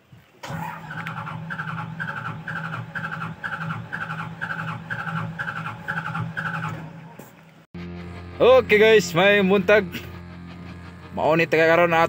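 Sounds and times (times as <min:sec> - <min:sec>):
diesel engine cranking on starter: 0:00.4 - 0:12.0
steady hum: 0:03.6 - 0:12.0.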